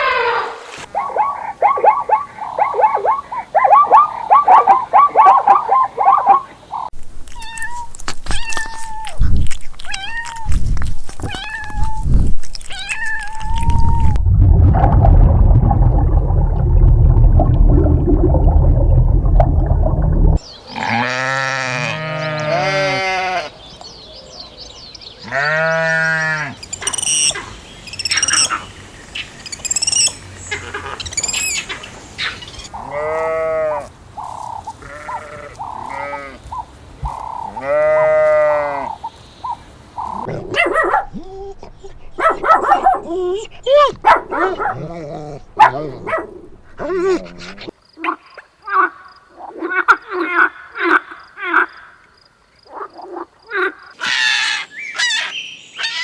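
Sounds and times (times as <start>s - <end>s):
loud low rumbling: 14.0s - 20.4s
long rising and falling calls: 54.0s - 56.0s
quick high animal calls: 54.0s - 56.0s.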